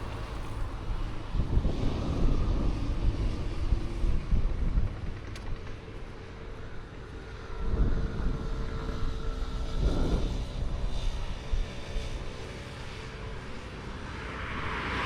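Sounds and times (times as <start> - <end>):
distant engine drone: 0.0 - 15.0
wind gusts on microphone: 0.0 - 15.0.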